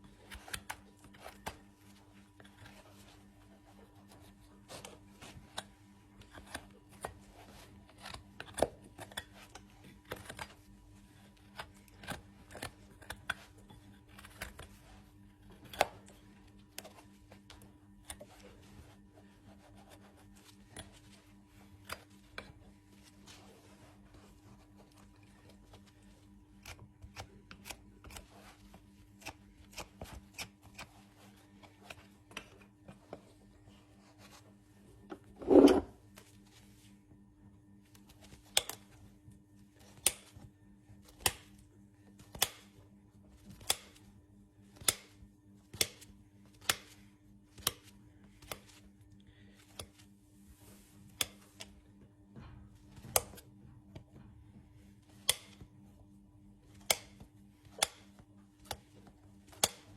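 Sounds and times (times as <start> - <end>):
tools snipping and scraping hoof: 4.1 - 10.6, 11.2 - 14.8, 24.9 - 32.7, 55.2 - 55.6, 56.7 - 59.9.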